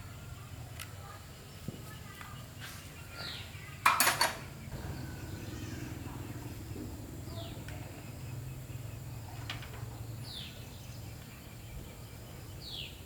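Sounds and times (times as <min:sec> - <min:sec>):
birds chirping: 0:00.0 - 0:13.0
low steady hum: 0:04.4 - 0:12.7.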